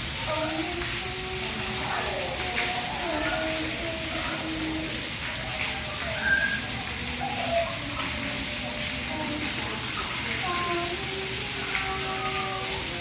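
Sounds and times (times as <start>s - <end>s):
running water rushing: 0.0s - 13.0s
faint voices: 0.2s - 13.0s.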